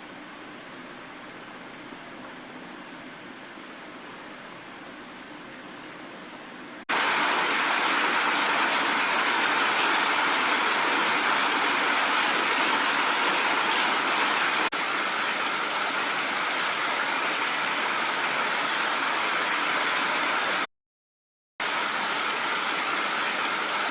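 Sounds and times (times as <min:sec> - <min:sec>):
heavy rain falling: 0:06.9 - 0:20.7, 0:21.6 - 0:23.9.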